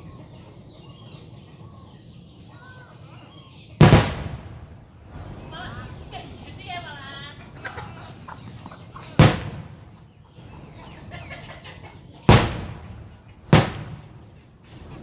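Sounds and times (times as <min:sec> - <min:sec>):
firecracker bangs: 0:03.8 - 0:05.4, 0:09.2 - 0:09.9, 0:12.2 - 0:14.2.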